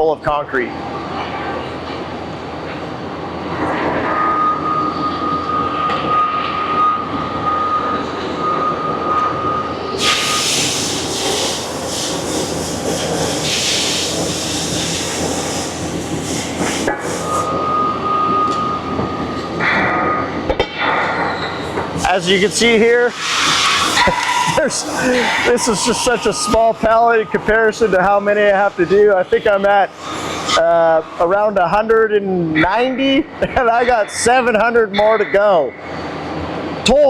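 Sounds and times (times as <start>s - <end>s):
machinery rumble: 0.7s - 36.9s
loud hiss: 10.0s - 17.5s, 21.7s - 30.8s
thin steady whine: 14.0s - 37.0s.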